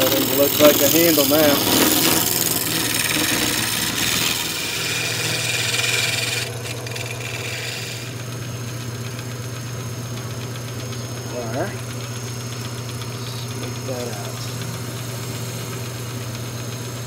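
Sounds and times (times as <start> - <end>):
tool scraping spinning wood: 0.0 - 9.5
wood lathe motor hum: 0.0 - 17.0.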